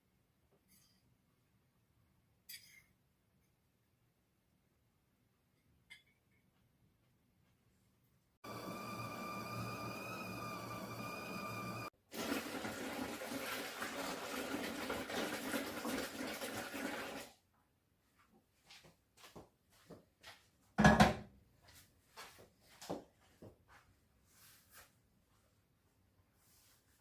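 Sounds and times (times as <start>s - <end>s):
water running: 8.4s - 17.4s.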